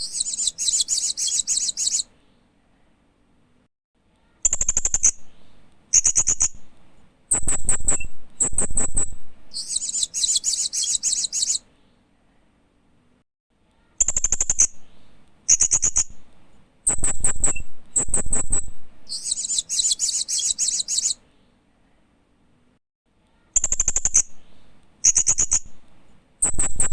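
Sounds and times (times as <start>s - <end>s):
parrot chirping trills: 0.0s - 2.1s, 7.3s - 11.6s, 15.5s - 16.3s, 16.9s - 21.2s, 25.0s - 25.8s, 26.4s - 26.9s.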